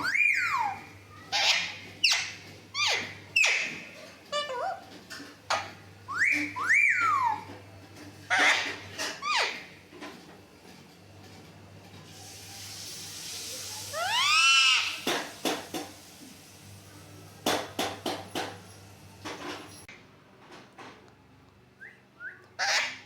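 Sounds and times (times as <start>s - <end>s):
parrot call: 0.0s - 4.8s, 5.5s - 7.5s, 13.9s - 15.1s, 22.6s - 23.0s
parrot squawks: 0.0s - 4.8s, 5.5s - 7.5s, 8.3s - 9.7s, 13.9s - 15.1s, 22.6s - 23.0s.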